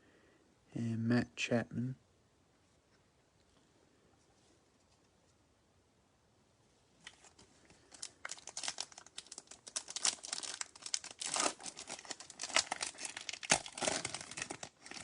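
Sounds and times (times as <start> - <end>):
foil wrapper tearing and crinkling: 7.1 - 15.0.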